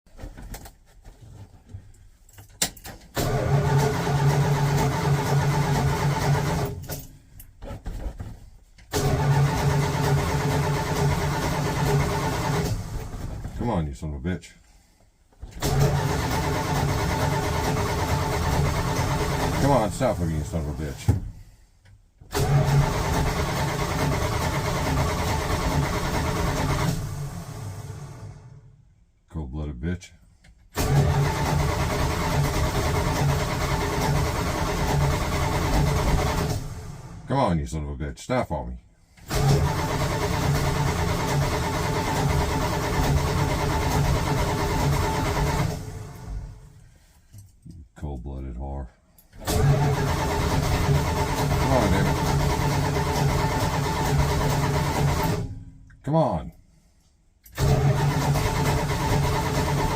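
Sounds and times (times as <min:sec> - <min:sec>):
engine starter cranking: 0:02.6 - 0:07.6, 0:08.8 - 0:13.5, 0:15.5 - 0:21.1, 0:22.2 - 0:28.6, 0:30.7 - 0:37.2, 0:39.2 - 0:46.7, 0:49.2 - 0:55.7, 0:57.4 - 0:59.9.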